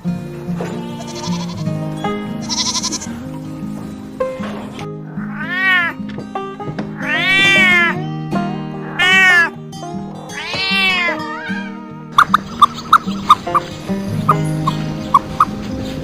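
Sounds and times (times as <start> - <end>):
background music: 0.0 - 16.0
cat meowing: 0.9 - 1.6, 2.4 - 3.1, 5.1 - 6.0, 7.0 - 8.0, 8.8 - 9.6, 10.3 - 12.4.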